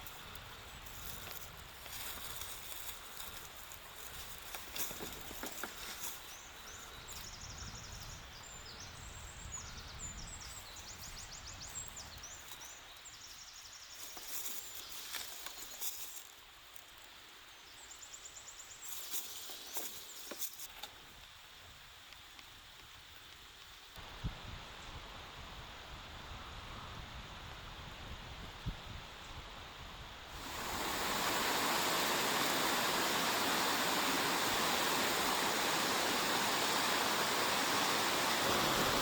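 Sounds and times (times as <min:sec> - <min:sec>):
steady outdoor hiss: 0:00.0 - 0:39.0
clicks and rustles: 0:00.9 - 0:06.3
songbirds trilling: 0:30.4 - 0:39.0.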